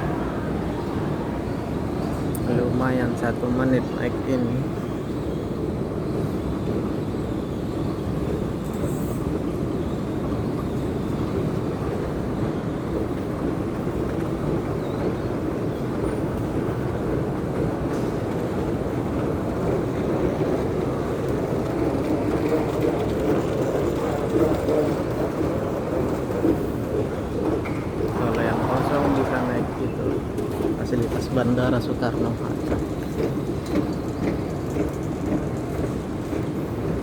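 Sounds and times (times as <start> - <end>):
moving walkway rumbling: 0.0 - 37.0.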